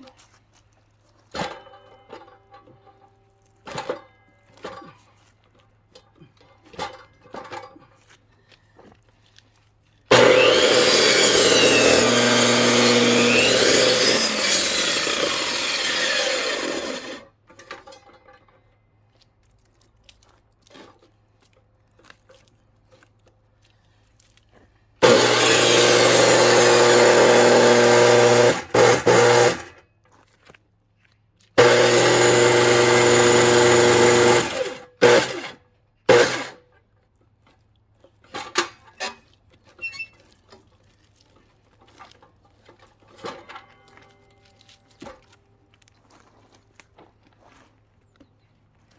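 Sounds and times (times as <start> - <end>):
circular saw cutting log: 10.1 - 17.3, 25.0 - 29.8, 31.6 - 36.6.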